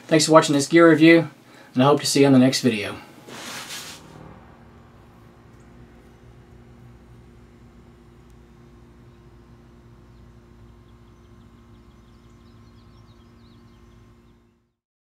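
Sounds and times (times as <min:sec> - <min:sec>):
steady low hum: 0:00.0 - 0:14.8
small bird twittering: 0:10.1 - 0:14.4.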